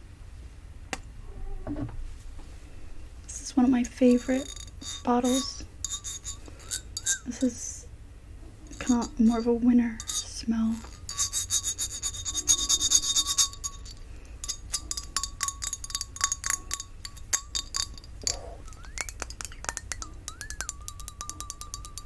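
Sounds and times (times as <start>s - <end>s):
fingernails tapping glass bottle: 10.0s - 22.0s
thin wavering high tone: 17.4s - 22.0s.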